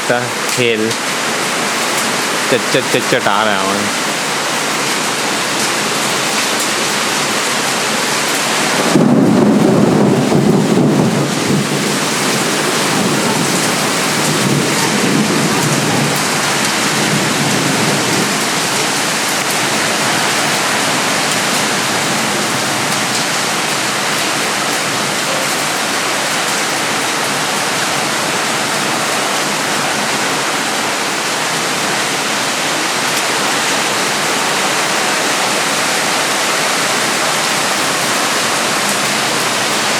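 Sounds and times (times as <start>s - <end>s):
heavy rain pouring: 0.0s - 39.9s
low rumble of thunder: 8.8s - 18.4s.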